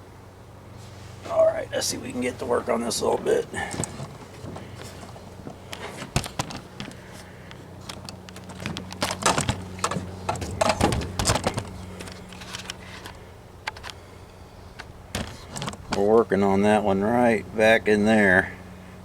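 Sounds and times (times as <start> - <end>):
steady low hum: 0.0 - 19.0
metal clanks and rattles: 7.9 - 13.2.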